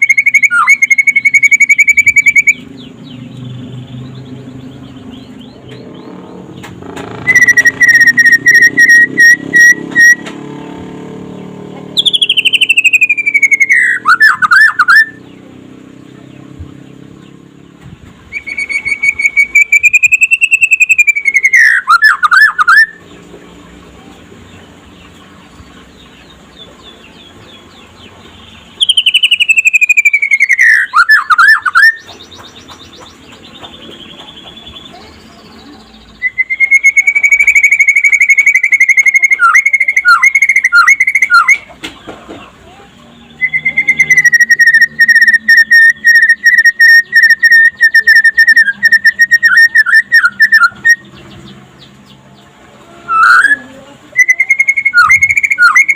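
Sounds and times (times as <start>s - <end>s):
bird singing whistled phrases: 0.0s - 5.8s, 7.2s - 10.3s, 12.0s - 15.3s, 18.3s - 23.2s, 26.5s - 32.7s, 33.8s - 41.7s, 43.2s - 51.4s, 53.0s - 55.9s.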